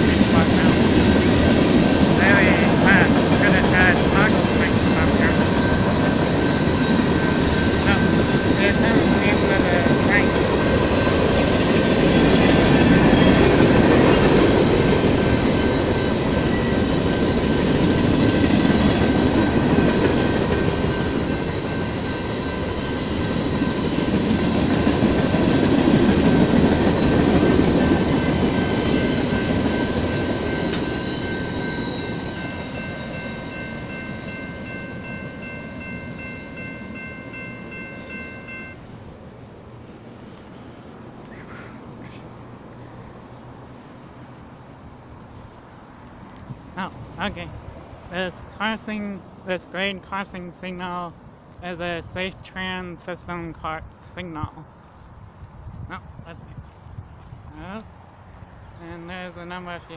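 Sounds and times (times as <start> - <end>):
train wheels rumbling on rail: 0.0 - 42.7
high ringing tones: 2.2 - 24.9, 26.6 - 38.9.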